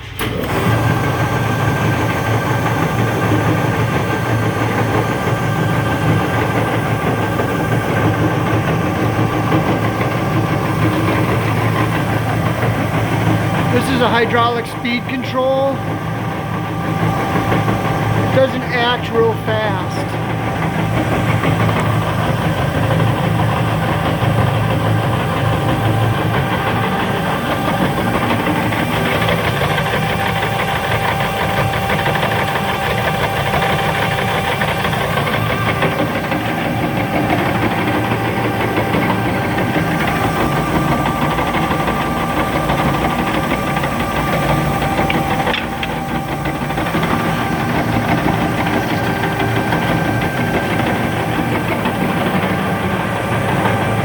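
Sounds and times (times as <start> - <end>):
bandsaw mechanical drone: 0.0 - 54.0
whining tones: 0.0 - 54.0.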